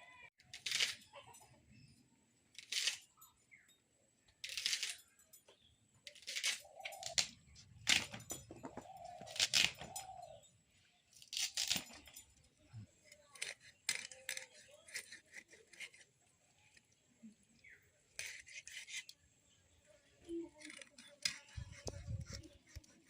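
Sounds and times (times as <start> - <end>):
knife cutting and scraping fish: 0.4 - 1.6, 2.5 - 3.4, 4.3 - 10.4, 11.0 - 19.6, 20.3 - 23.0.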